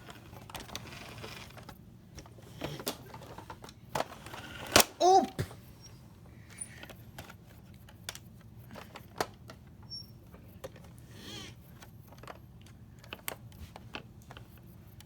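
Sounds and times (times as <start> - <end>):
faint voice-like sound: 5.0 - 5.6.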